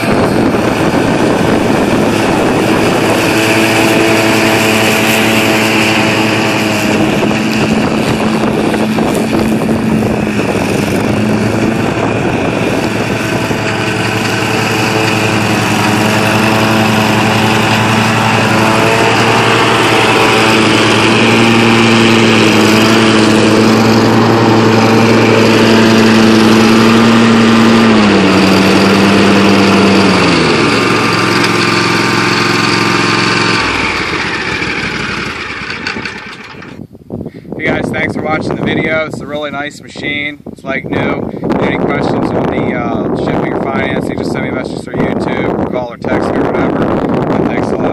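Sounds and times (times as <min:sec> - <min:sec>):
mower engine running: 0:00.0 - 0:36.9, 0:40.9 - 0:47.9.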